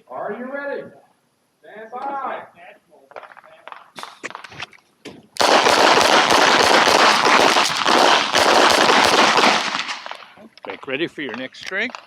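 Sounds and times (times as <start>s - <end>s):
rapid pistol shots: 5.4s - 10.3s.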